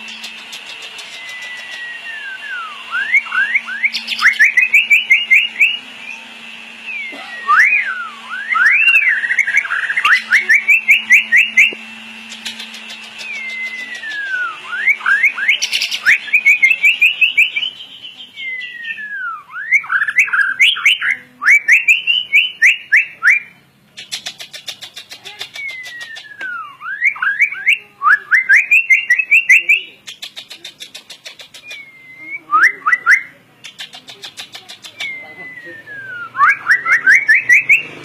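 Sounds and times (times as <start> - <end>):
high ticking bird chatter: 0.0 - 2.0, 2.9 - 6.3, 8.6 - 19.0, 23.8 - 27.8, 28.4 - 32.2, 33.6 - 38.0
bird whistling song: 0.0 - 38.0.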